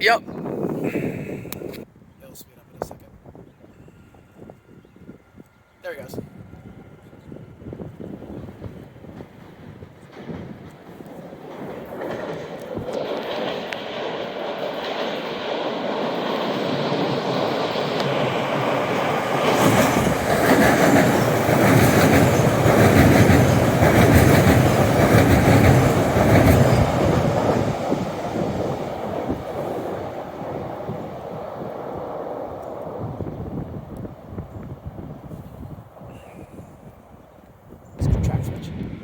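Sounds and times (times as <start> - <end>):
train wheels clattering over track: 8.0 - 30.3.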